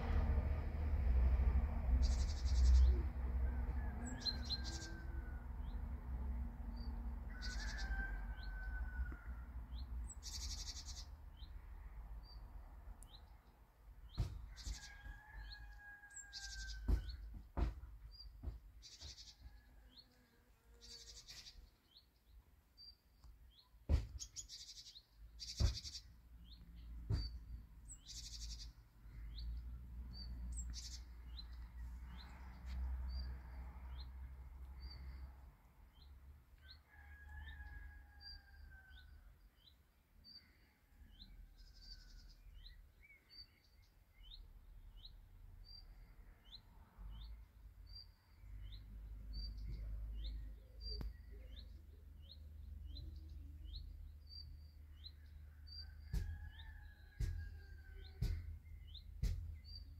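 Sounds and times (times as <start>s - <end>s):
small birds chirping: 2.0s - 3.1s, 9.7s - 11.6s, 12.2s - 33.3s, 38.4s - 59.9s.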